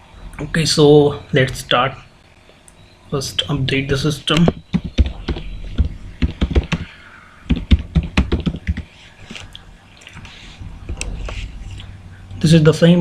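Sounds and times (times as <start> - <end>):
typing on computer keyboard: 4.4 - 6.9, 7.5 - 8.9.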